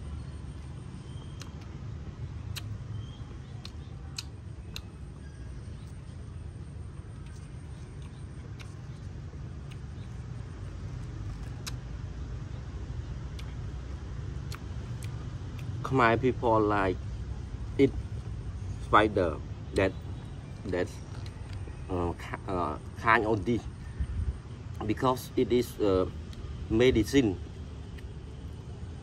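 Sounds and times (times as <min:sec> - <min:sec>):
low background rumble: 0:00.0 - 0:29.0
crispy food crackling as chewed: 0:00.5 - 0:06.2, 0:06.8 - 0:15.9, 0:20.0 - 0:23.6, 0:27.4 - 0:28.9.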